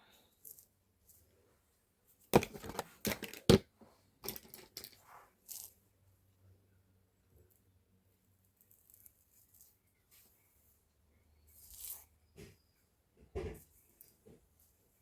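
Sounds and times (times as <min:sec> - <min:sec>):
rustling: 0:08.5 - 0:10.8, 0:11.5 - 0:12.2.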